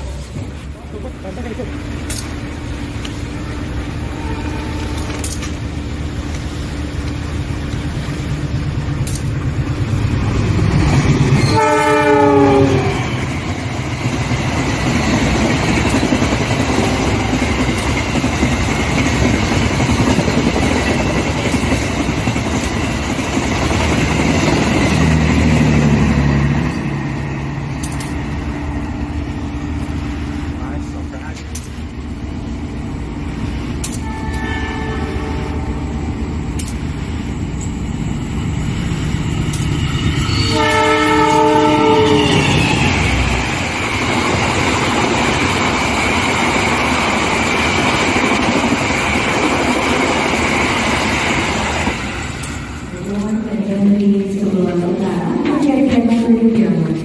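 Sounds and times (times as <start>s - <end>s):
train rumbling and clattering: 0.0s - 57.0s
train horn blast: 4.0s - 5.4s, 11.4s - 13.2s, 33.9s - 36.0s, 40.3s - 42.9s.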